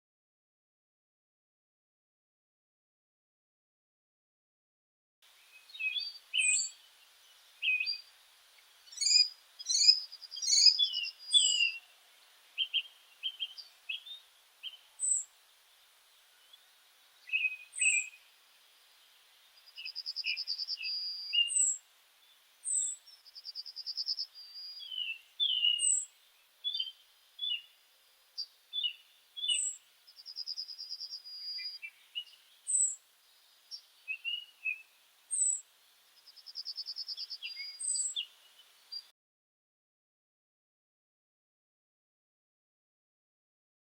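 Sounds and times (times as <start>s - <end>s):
birds chirping: 5.3s - 35.6s, 36.2s - 39.1s
buzzy bird trill: 8.9s - 11.9s, 12.6s - 15.3s, 17.3s - 18.3s, 19.6s - 21.8s, 22.6s - 26.1s, 28.4s - 33.0s.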